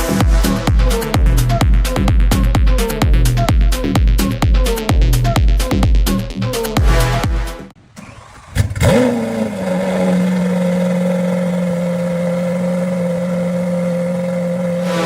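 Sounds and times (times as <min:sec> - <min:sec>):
car engine starting and idling: 0:07.7 - 0:15.0.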